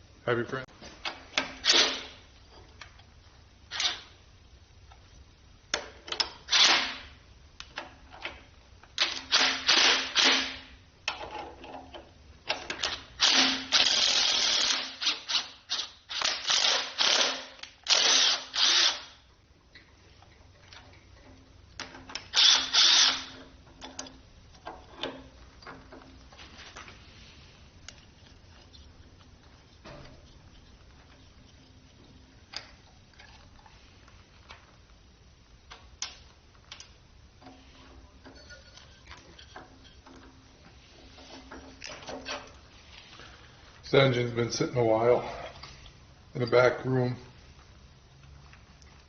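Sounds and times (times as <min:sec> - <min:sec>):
power tool motor bursts: 0:09.3 - 0:10.6, 0:13.2 - 0:19.2, 0:22.3 - 0:23.4.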